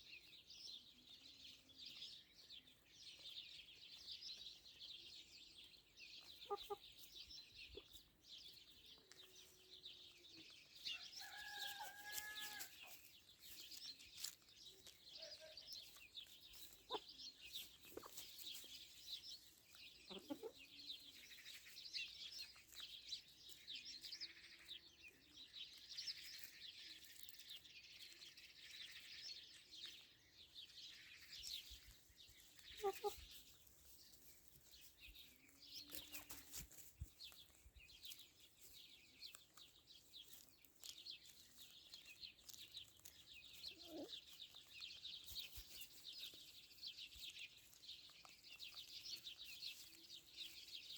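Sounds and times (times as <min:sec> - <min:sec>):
small birds chirping: 0:00.0 - 0:50.9
chickens clucking: 0:06.2 - 0:08.0, 0:16.6 - 0:18.9, 0:19.9 - 0:21.7, 0:32.6 - 0:33.5, 0:43.8 - 0:44.6.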